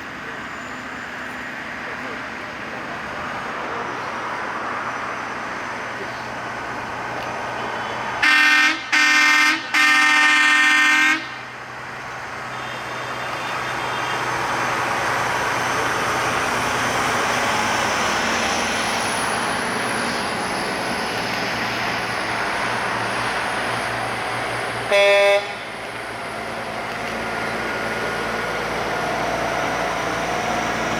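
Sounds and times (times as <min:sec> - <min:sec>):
truck engine and tyres passing: 0:00.0 - 0:30.9
truck horn blasts: 0:08.2 - 0:11.4, 0:24.9 - 0:25.7.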